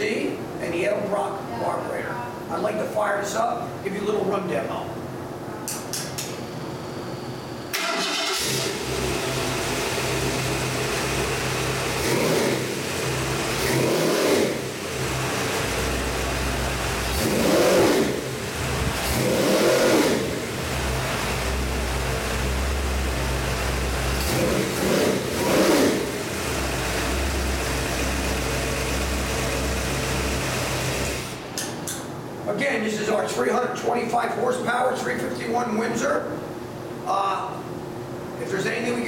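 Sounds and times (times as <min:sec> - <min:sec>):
car engine starting and idling: 0:07.4 - 0:31.8
engine revving in short blips: 0:11.8 - 0:16.2, 0:17.0 - 0:21.5, 0:24.2 - 0:29.4.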